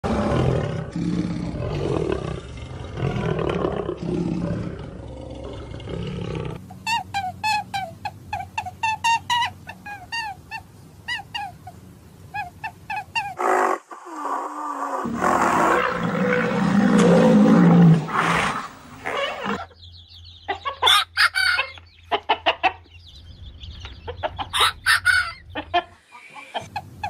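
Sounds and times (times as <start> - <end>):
big cat growling: 0.0 - 6.6, 13.4 - 19.7
high chirping calls: 19.1 - 26.7.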